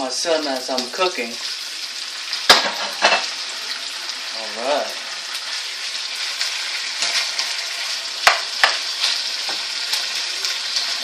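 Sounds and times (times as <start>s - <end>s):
food sizzling in a wok: 0.0s - 11.0s
utensil knocking against wok: 8.2s - 8.8s.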